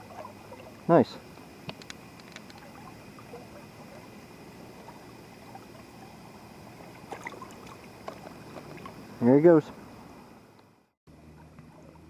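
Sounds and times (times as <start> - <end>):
small clicks or splashes: 1.6 - 3.0.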